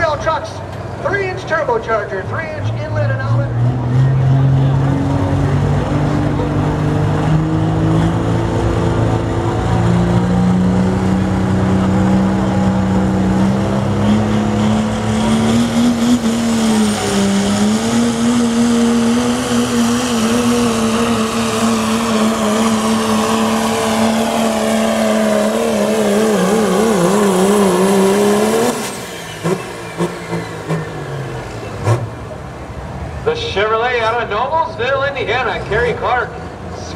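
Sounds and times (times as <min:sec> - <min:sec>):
diesel truck engine at full throttle: 0:00.0 - 0:36.9
high turbo whistle: 0:20.3 - 0:27.8.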